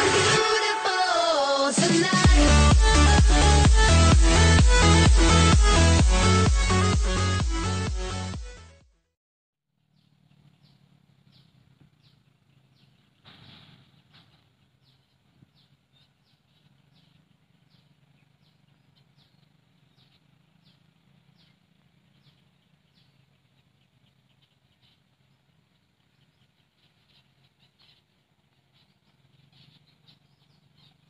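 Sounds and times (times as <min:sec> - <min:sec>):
electronic dance music: 0:00.0 - 0:08.7
low steady hum: 0:10.0 - 0:31.0.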